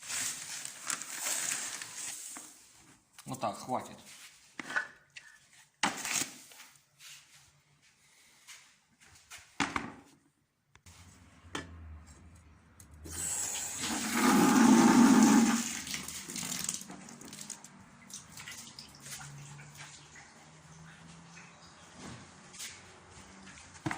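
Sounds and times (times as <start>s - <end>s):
powder mixing with water sloshing: 13.8s - 23.9s.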